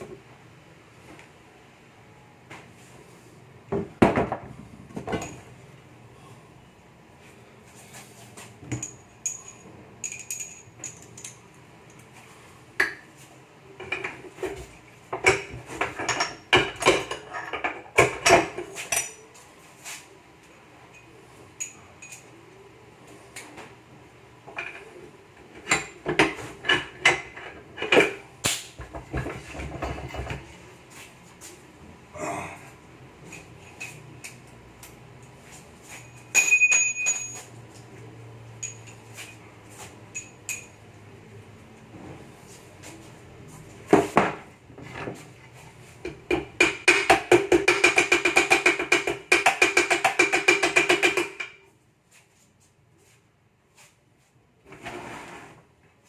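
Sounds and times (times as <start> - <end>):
metal tools clinking and knocking: 5.0 - 5.5, 8.6 - 12.0, 15.2 - 19.4, 20.9 - 22.4, 35.9 - 37.6, 38.6 - 39.4, 40.1 - 40.8.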